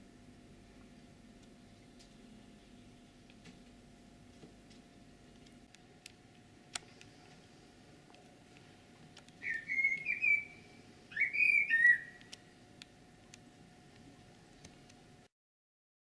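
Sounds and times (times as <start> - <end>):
songbird whistling: 9.4 - 12.4.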